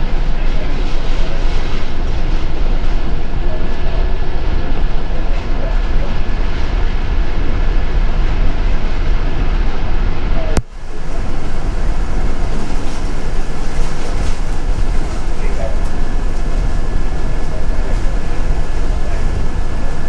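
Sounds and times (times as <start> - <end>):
bus engine and road rumble: 0.0 - 20.0
faint steady whine: 0.0 - 20.0.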